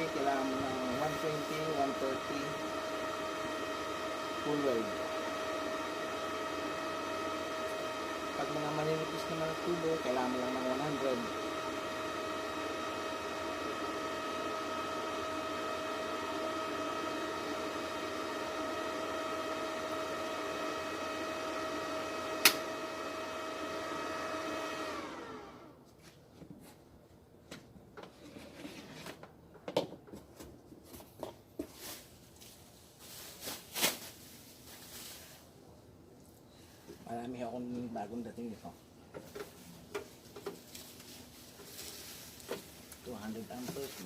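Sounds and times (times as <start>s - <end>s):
small electric motor whining: 0.0s - 25.8s.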